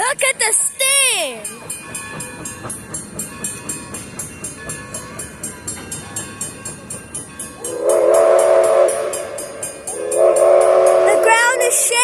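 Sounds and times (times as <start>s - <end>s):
steam locomotive chuffing: 0.0s - 12.0s
steam whistle chord: 7.6s - 11.7s.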